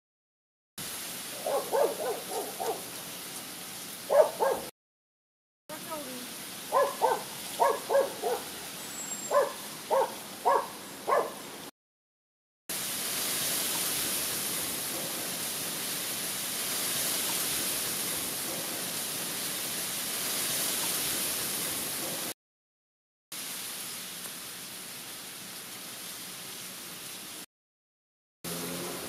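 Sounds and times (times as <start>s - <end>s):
steady hiss: 0.8s - 4.7s, 5.7s - 11.7s, 12.7s - 22.2s, 23.4s - 27.4s
bird hooting: 1.4s - 2.9s, 6.7s - 8.5s, 9.3s - 11.4s.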